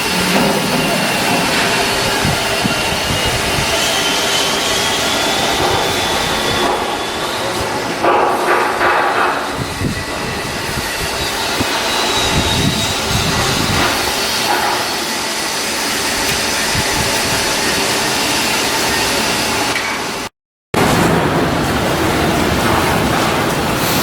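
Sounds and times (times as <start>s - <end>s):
loud steady hiss: 23.3s - 24.0s.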